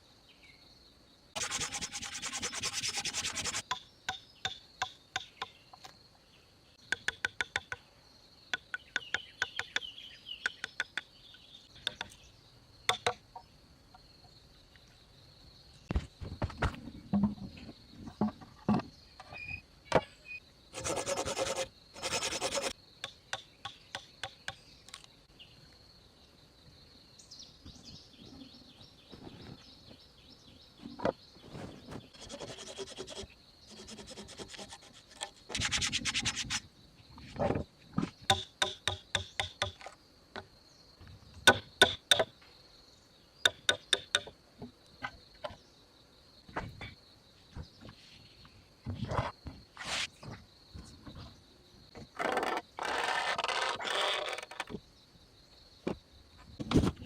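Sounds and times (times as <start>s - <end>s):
high insect drone: 0.0s - 11.0s, 11.7s - 57.0s
hand tool rasping wood: 1.4s - 3.7s, 20.8s - 22.8s, 32.1s - 36.6s.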